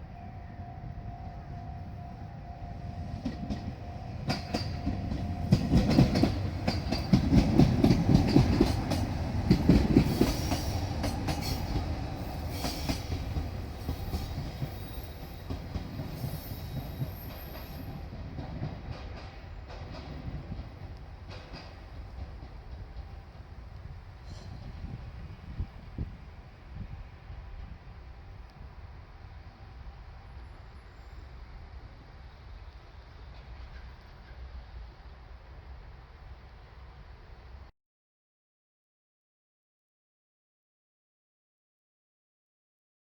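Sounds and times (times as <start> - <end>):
train wheels clattering over rail joints: 4.2 - 23.2.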